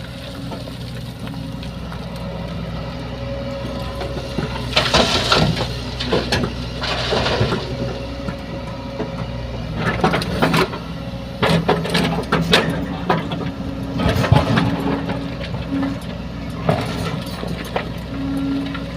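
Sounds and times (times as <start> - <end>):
rocks scraping and clattering: 0.0 - 2.7, 3.6 - 8.4
excavator diesel engine running: 0.0 - 18.9.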